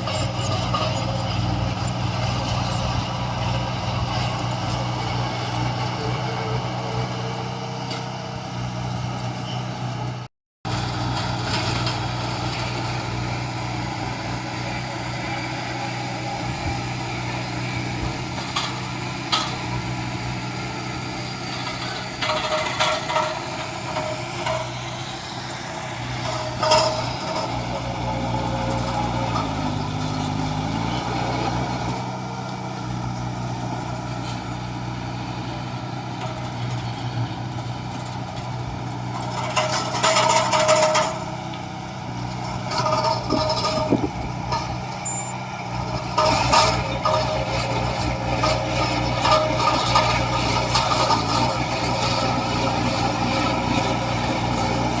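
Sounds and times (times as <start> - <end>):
metal clanks and knocks: 0.0 - 10.1, 18.0 - 20.4, 21.0 - 32.1, 36.1 - 55.0
diesel machinery engine: 0.0 - 55.0.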